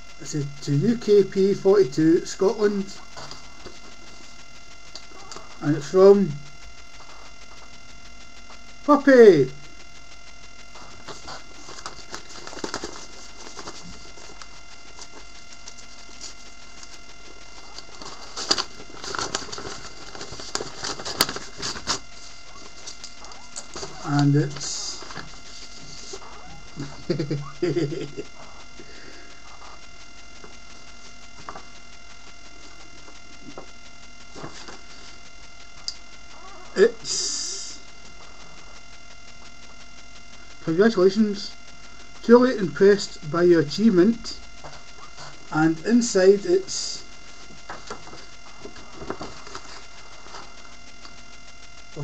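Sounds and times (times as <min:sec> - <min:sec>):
electrical hum: 0:00.0 - 0:52.0
paper envelope rustling: 0:10.7 - 0:27.8, 0:34.3 - 0:35.1, 0:47.4 - 0:51.2.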